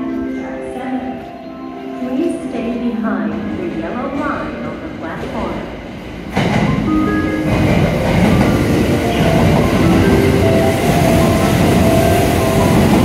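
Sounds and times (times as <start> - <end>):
train wheels rumbling on rail: 3.1 - 13.0
rail-joint clatter: 6.3 - 13.0.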